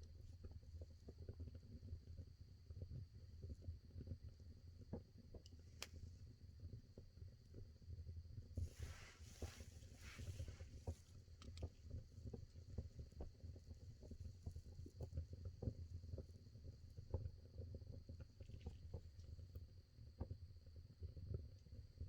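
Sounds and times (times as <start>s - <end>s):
soft hiss: 8.6s - 11.0s.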